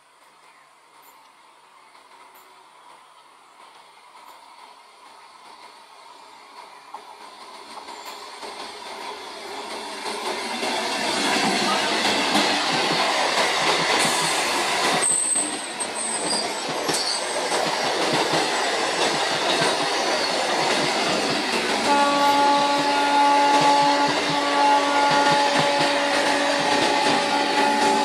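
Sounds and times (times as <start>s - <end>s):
train wheels clattering on rails: 1.9s - 28.0s
train horn chord: 21.8s - 28.0s.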